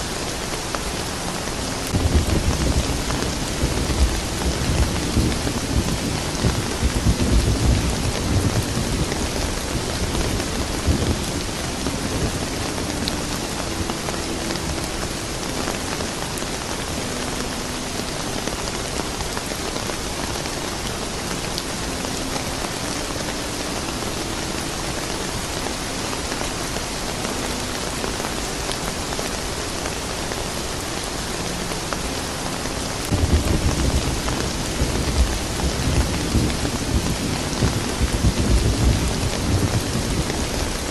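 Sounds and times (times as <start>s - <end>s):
steady rain falling: 0.0s - 40.9s
distant thunder rumble: 1.9s - 14.0s, 33.1s - 40.9s.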